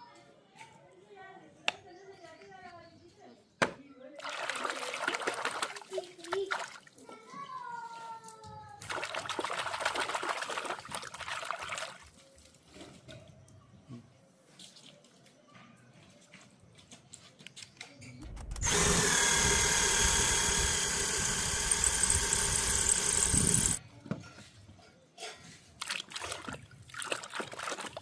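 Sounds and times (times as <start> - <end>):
faint knocks and trickles: 12.1 - 18.3, 23.9 - 28.0
small motor whirring: 18.2 - 23.8.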